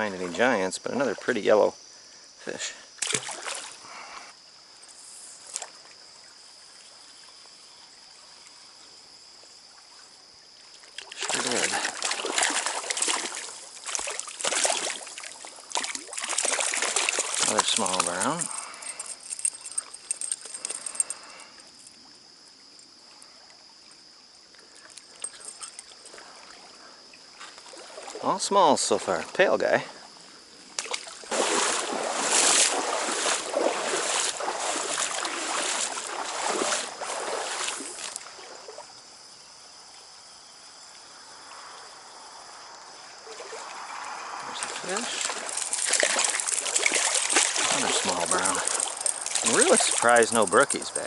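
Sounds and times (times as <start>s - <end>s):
stream running: 2.5s - 4.6s, 5.4s - 51.0s
splashing and handling noise: 3.0s - 3.8s, 10.7s - 21.9s, 30.8s - 38.3s, 44.5s - 51.0s.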